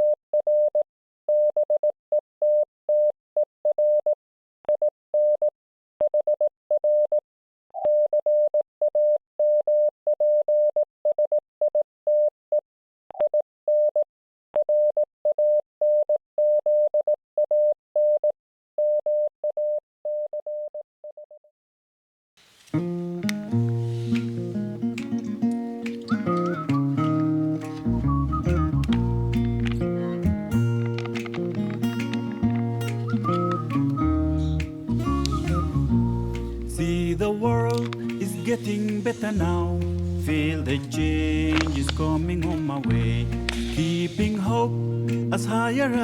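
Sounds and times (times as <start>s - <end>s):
morse code beeps: 24.0s - 44.6s.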